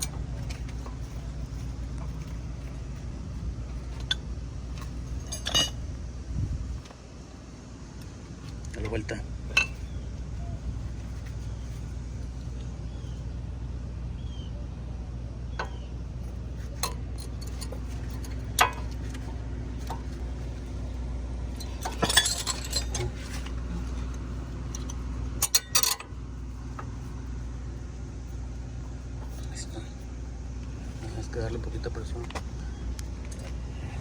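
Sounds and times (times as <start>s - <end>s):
brake hardware metal clinks: 0.0s - 7.0s, 8.0s - 12.6s, 15.5s - 27.2s
steady low hum: 0.0s - 34.0s.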